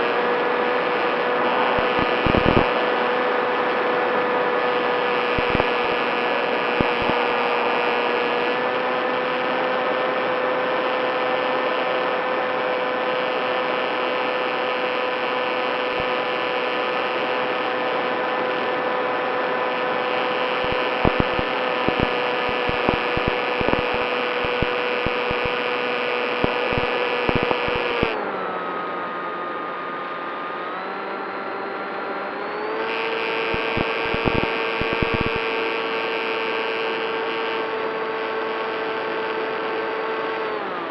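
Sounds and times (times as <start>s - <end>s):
model plane motor whine: 0.0s - 40.9s
short crackles: 20.5s - 25.5s, 33.5s - 35.4s.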